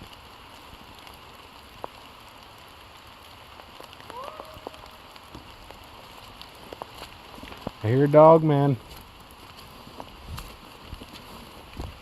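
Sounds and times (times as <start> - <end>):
rain pattering: 0.0 - 12.0
single raindrops: 0.0 - 12.0.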